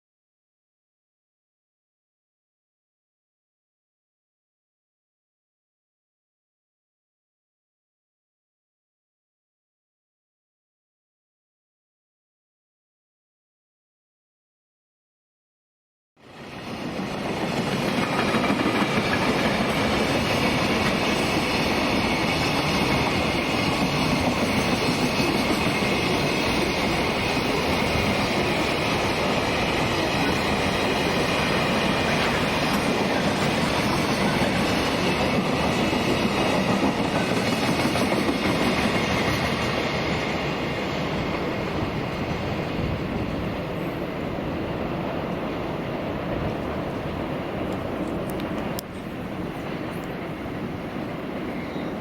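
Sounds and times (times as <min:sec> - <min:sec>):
train wheels clacking on rails: 0:16.4 - 0:44.2.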